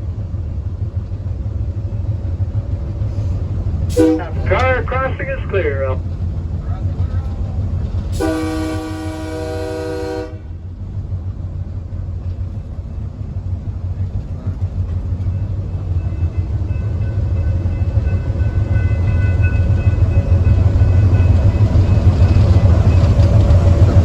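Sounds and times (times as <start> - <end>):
train rumbling on rails: 0.0 - 24.0
train horn blast: 3.9 - 4.9, 8.2 - 10.6.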